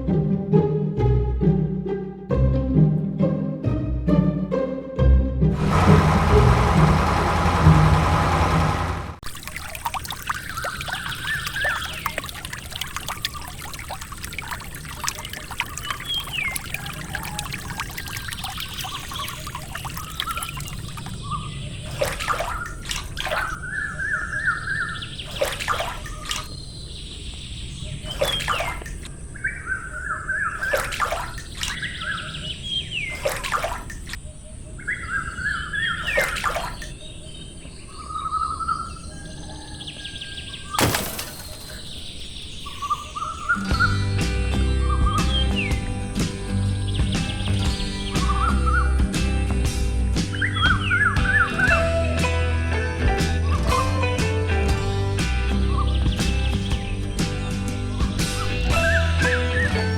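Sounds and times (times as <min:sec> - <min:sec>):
music: 0:00.0 - 0:05.6, 0:43.6 - 0:59.9
water trickling: 0:05.6 - 0:23.6, 0:40.8 - 0:43.0
bird chirps: 0:55.6 - 0:59.9.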